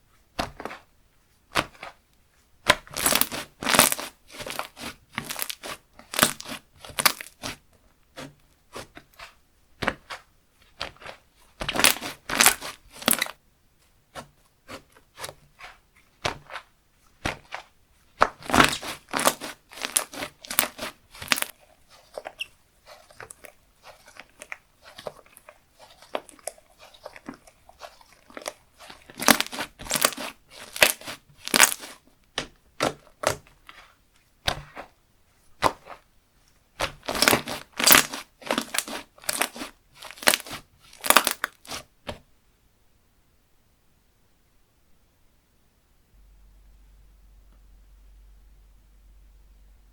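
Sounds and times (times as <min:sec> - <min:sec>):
slime squished by hand: 0:02.6 - 0:13.4, 0:14.1 - 0:33.9, 0:35.6 - 0:36.0, 0:36.7 - 0:42.2.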